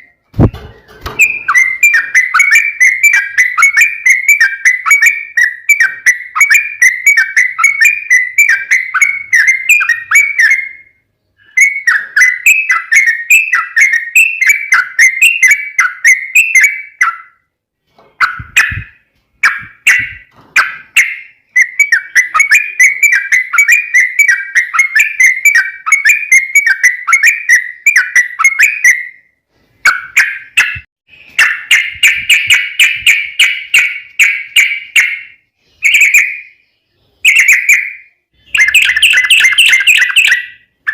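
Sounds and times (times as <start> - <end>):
bird singing bubbly chirps: 30.0 - 40.9.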